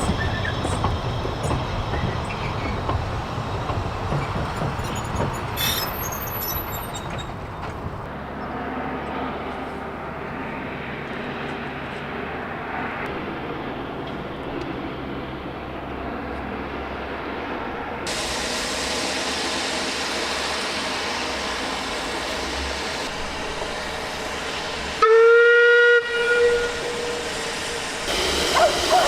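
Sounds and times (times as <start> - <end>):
steam locomotive hissing and rumbling: 0.0 - 29.0
steam whistle blast: 25.0 - 27.3, 28.1 - 29.0.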